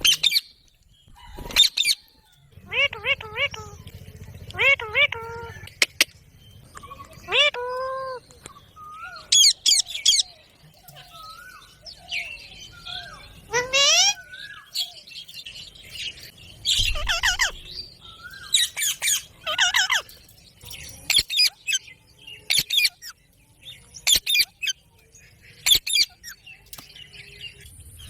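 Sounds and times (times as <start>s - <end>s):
parrot squawking: 2.6s - 3.9s, 4.5s - 6.0s, 6.8s - 8.2s, 12.8s - 14.9s, 16.7s - 20.1s.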